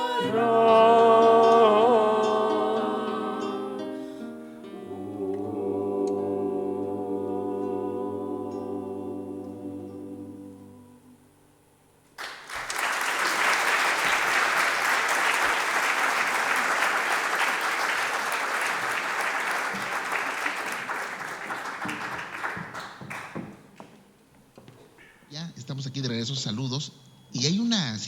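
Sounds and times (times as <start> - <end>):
audience applauding: 12.2 - 23.9.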